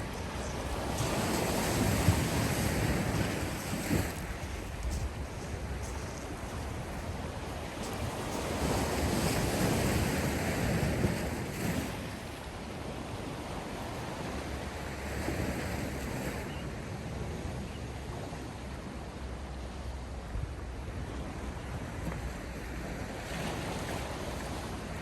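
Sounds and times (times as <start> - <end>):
wind rumbling on microphone: 0.0 - 12.4
sea waves breaking: 0.0 - 25.0.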